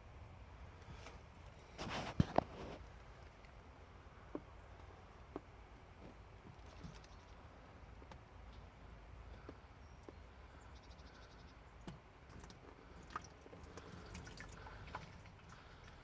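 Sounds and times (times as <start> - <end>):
faint oil drips: 11.8 - 16.0.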